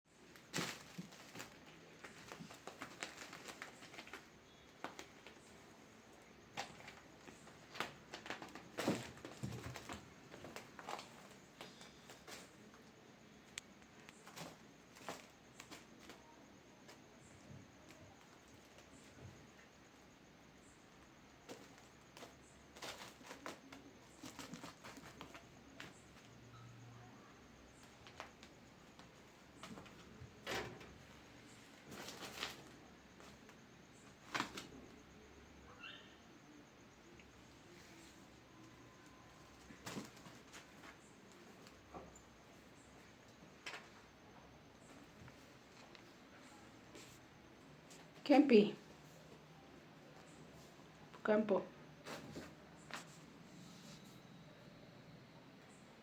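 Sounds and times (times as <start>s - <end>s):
cats tapping and scuffling: 0.1s - 35.4s, 37.0s - 51.3s, 52.0s - 54.2s
cats scampering on hard floor: 0.3s - 5.4s, 6.5s - 12.8s, 21.4s - 26.4s, 39.3s - 42.3s.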